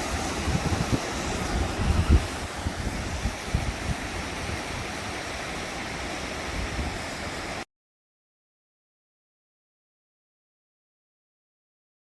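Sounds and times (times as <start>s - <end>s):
wind buffeting microphone: 0.0s - 5.3s
river water rushing: 0.0s - 7.6s.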